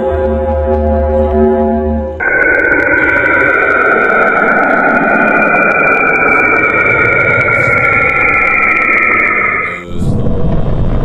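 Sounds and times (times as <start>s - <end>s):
hiss: 2.2s - 9.8s
steady high tones: 2.2s - 9.8s
low rumbling noise: 2.2s - 11.0s.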